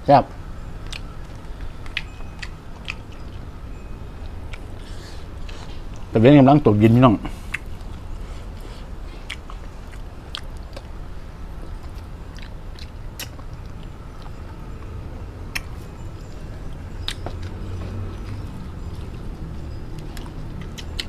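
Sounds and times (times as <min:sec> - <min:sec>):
person chewing soft food: 0:00.8 - 0:06.1, 0:07.2 - 0:21.0
wet mouth clicks and lip smacks: 0:12.4 - 0:13.5.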